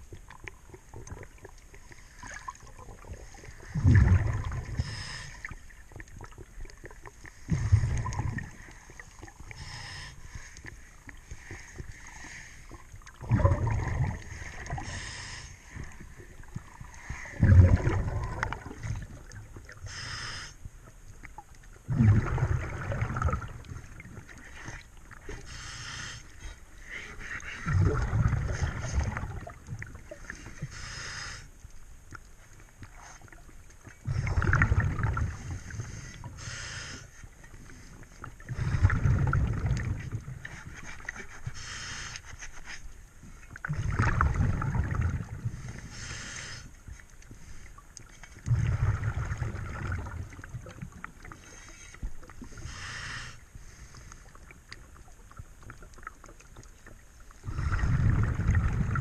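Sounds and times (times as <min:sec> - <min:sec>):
exhaled bubbles rumbling: 0:00.0 - 0:20.0, 0:20.7 - 0:25.5, 0:26.6 - 0:30.7, 0:32.8 - 0:36.5, 0:37.3 - 0:41.2, 0:43.5 - 0:46.1, 0:48.0 - 0:51.4, 0:54.3 - 0:59.0
regulator inhale hiss: 0:04.6 - 0:05.6, 0:08.6 - 0:12.8, 0:14.3 - 0:16.0, 0:19.8 - 0:20.7, 0:24.5 - 0:27.4, 0:30.6 - 0:31.6, 0:35.4 - 0:38.9, 0:41.5 - 0:42.8, 0:45.5 - 0:47.8, 0:51.3 - 0:54.4.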